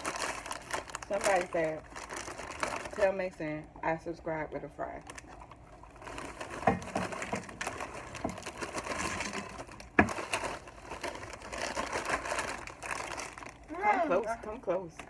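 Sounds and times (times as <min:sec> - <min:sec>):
chewing crunchy chips: 0:00.0 - 0:03.0, 0:05.0 - 0:13.7.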